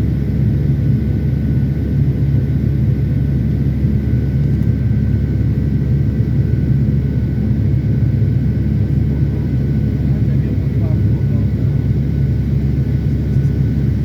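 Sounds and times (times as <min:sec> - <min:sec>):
aircraft cabin engine rumble: 0:00.0 - 0:14.0.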